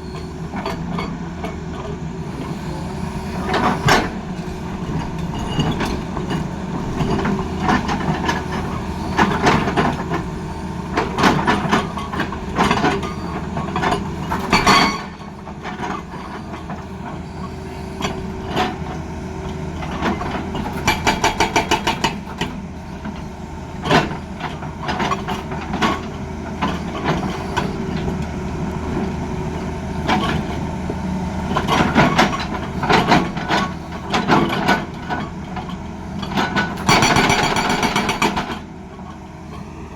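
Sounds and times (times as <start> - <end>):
excavator diesel engine: 0.0 - 39.9
metallic clanks and knocks: 31.6 - 38.6
hydraulic breaker hammering: 36.8 - 38.6.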